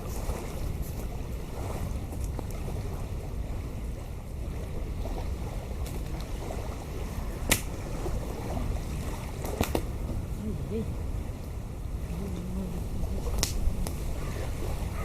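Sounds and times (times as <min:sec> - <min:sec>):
wind rumbling on microphone: 0:00.0 - 0:15.0
campfire crackling and popping: 0:13.3 - 0:14.0.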